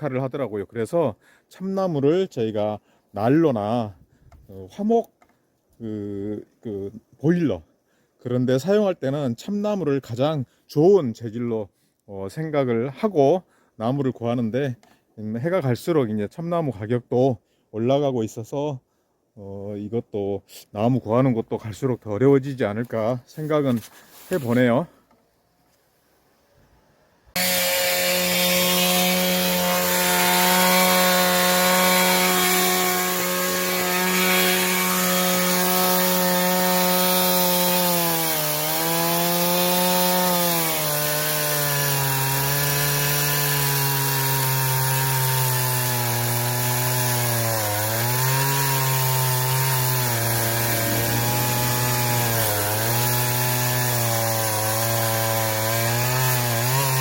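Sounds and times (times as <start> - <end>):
chainsaw cutting wood: 27.3 - 57.0.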